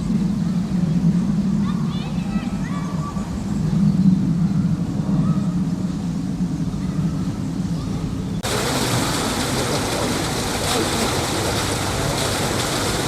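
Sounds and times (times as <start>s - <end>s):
rushing water hiss: 8.4s - 13.0s.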